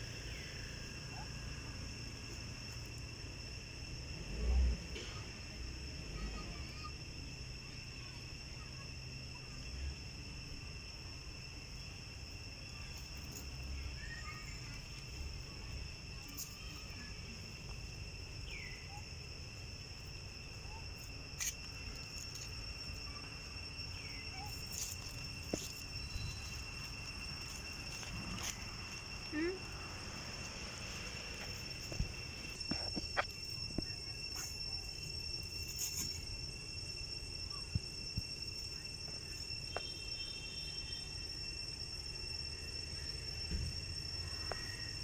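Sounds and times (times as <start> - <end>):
insects droning: 0.0 - 45.0
faint chirps: 18.3 - 19.2, 20.4 - 45.0.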